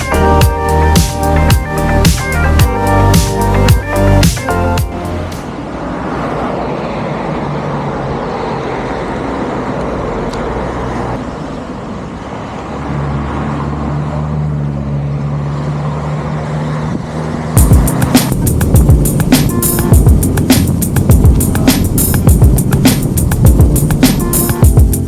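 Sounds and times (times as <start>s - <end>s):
vehicle motor running: 0.0s - 5.5s, 14.6s - 25.0s
road and wind rumble: 0.0s - 25.0s
low engine hum: 14.5s - 25.0s.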